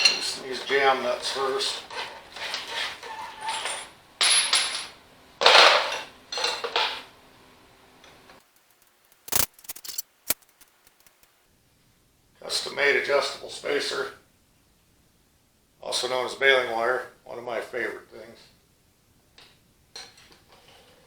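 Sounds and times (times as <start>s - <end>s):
wrenches scraping and clinking metal: 0.0s - 4.9s, 8.6s - 11.2s
sharp metallic clicks: 8.4s - 11.4s.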